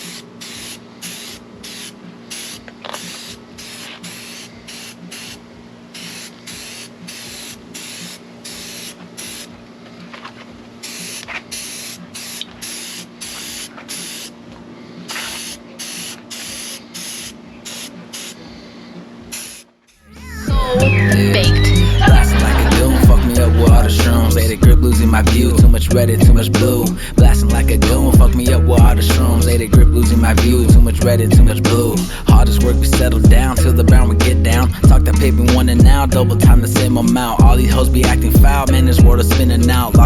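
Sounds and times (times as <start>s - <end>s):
spray paint hissing: 0.0s - 9.6s, 10.8s - 14.4s, 15.0s - 18.6s, 19.2s - 20.0s, 20.6s - 40.0s.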